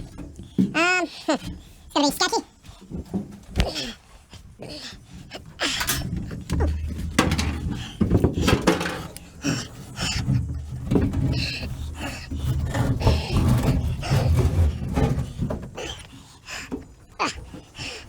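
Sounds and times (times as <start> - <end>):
knocks and clunks of parts: 5.6 - 16.1.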